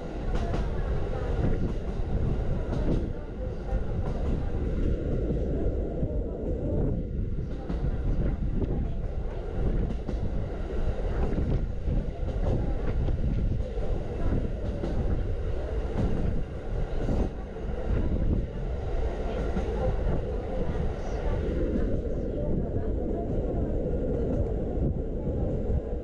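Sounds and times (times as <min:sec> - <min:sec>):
rail joint clicks: 0:00.0 - 0:05.0, 0:07.5 - 0:18.4
train wheels rumbling on rails: 0:00.0 - 0:26.0.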